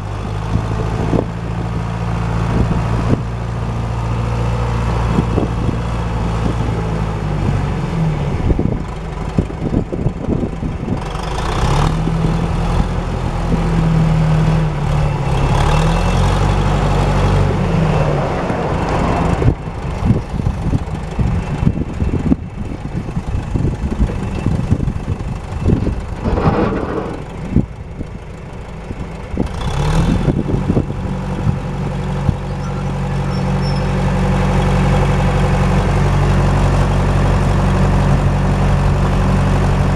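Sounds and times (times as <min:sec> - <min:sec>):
backhoe engine revving: 0:00.0 - 0:39.9
knocks and rattles: 0:25.7 - 0:27.6.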